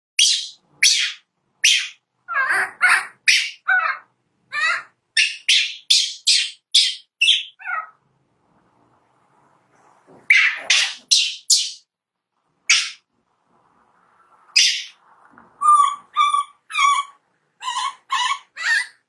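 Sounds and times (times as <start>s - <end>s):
monkey squealing: 15.6s - 19.0s.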